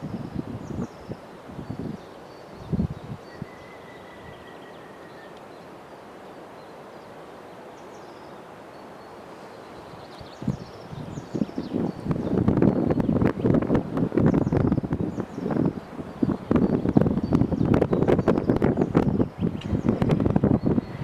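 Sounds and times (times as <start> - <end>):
wind buffeting microphone: 0.0 - 4.7, 9.8 - 21.0
steady background hiss: 0.0 - 21.0
faint bird chirps: 0.2 - 13.5.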